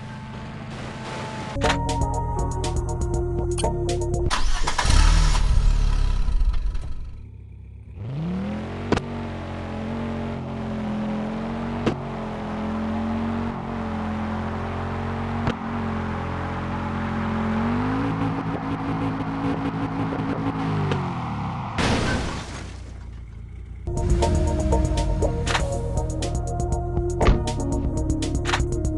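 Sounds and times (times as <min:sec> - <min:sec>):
race car engine revving: 0:04.4 - 0:21.8.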